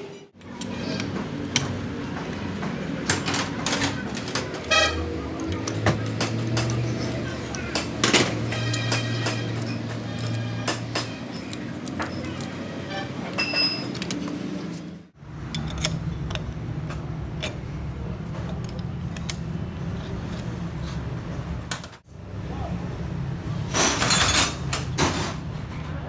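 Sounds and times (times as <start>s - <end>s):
tools and parts clinking: 0.4s - 14.5s, 15.4s - 21.0s, 23.7s - 25.9s.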